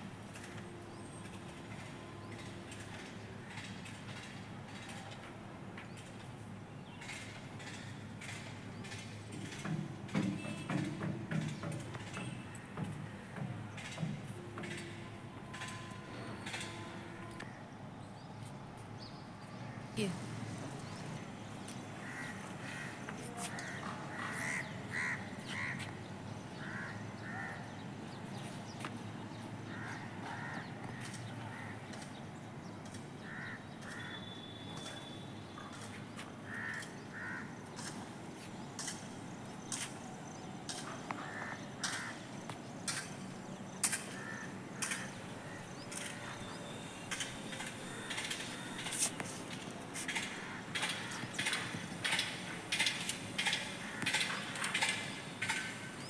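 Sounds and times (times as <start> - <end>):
birds calling: 5.8 - 56.0
sharp clicks: 47.0 - 56.0.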